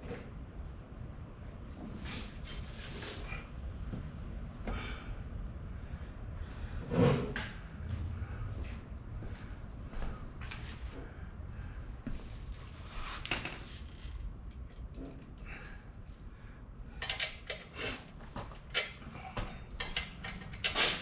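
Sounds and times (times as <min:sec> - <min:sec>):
hand tools and metal parts clinking: 0:13.5 - 0:15.2, 0:17.0 - 0:21.0.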